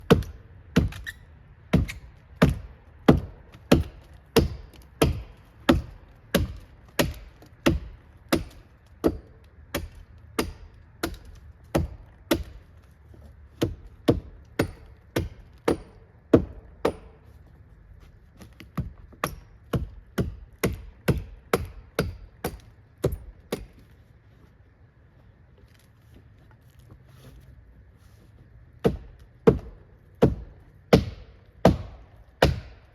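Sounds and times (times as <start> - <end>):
axe chopping wood: 0.0 - 1.0, 1.7 - 12.8, 13.6 - 17.3, 18.4 - 23.9, 28.8 - 32.9.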